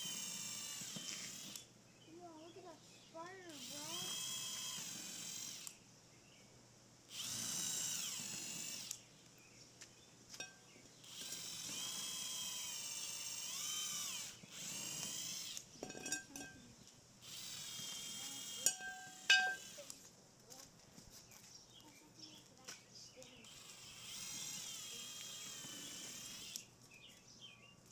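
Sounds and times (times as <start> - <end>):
power drill whining: 0.0 - 1.7, 3.4 - 5.8, 7.1 - 9.0, 11.0 - 16.6, 17.2 - 20.0, 23.4 - 26.7
sharp clicks: 3.5 - 5.8, 7.1 - 9.0, 11.0 - 15.7, 17.2 - 20.0, 22.7 - 26.7.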